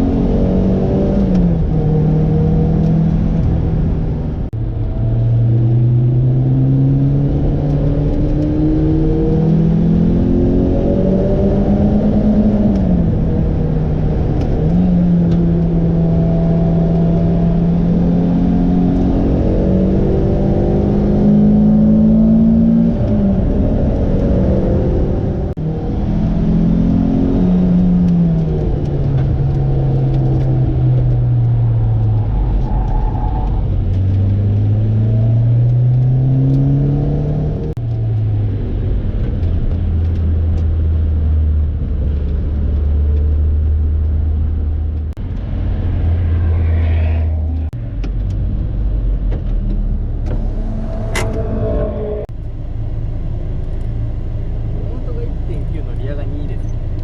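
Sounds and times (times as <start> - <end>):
sports car engine revving: 0.0 - 57.0.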